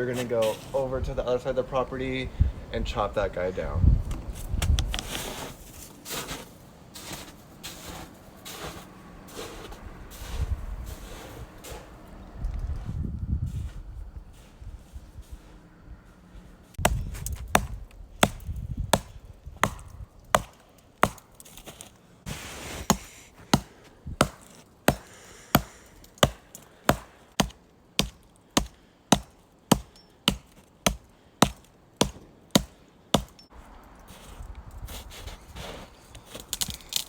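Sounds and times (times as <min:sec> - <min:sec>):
axe chopping wood: 0:16.8 - 0:21.9, 0:22.8 - 0:33.5.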